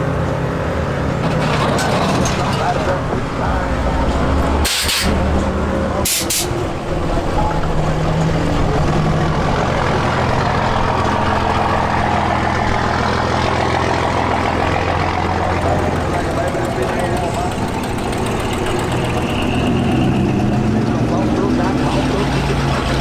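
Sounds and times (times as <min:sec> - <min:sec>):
vehicle engine humming: 0:00.0 - 0:23.0
air hisses: 0:04.6 - 0:05.2, 0:06.0 - 0:06.5.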